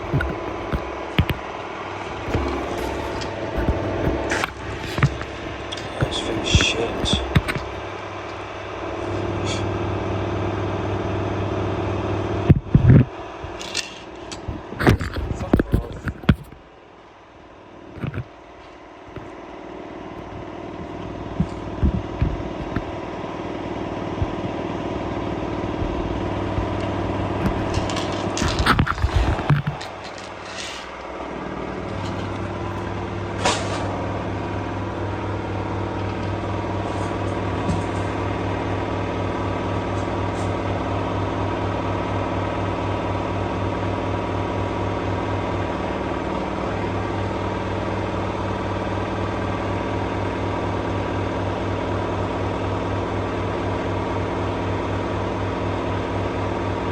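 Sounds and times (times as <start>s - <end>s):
sharp knocks: 0.0s - 1.4s, 2.2s - 7.8s
washing machine spinning: 0.0s - 9.0s.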